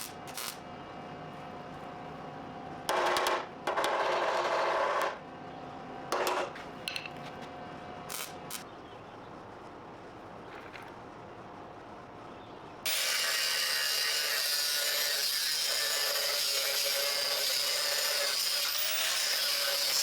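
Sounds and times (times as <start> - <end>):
power tool on steel: 0.0 - 0.6, 12.9 - 20.0.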